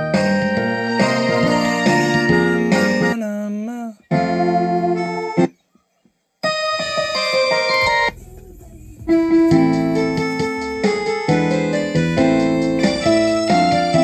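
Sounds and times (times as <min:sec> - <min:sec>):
electronic keyboard christmas music: 0:00.0 - 0:03.2, 0:09.2 - 0:14.0.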